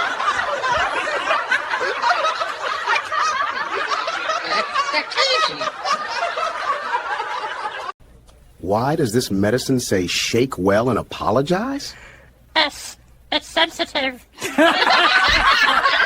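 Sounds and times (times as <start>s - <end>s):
people laughing: 0.0s - 8.0s, 13.3s - 16.0s.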